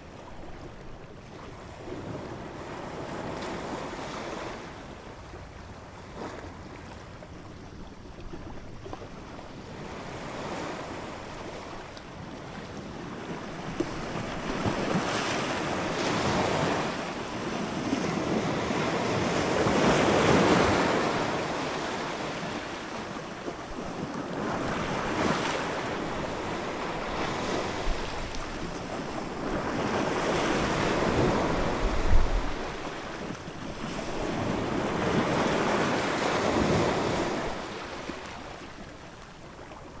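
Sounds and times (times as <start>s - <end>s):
wind noise on microphone: 26.1s - 35.8s.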